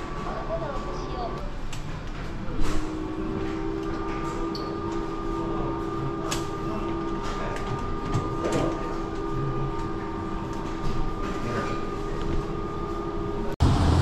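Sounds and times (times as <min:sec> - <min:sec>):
train carriage hum and rumble: 0:00.0 - 0:14.0.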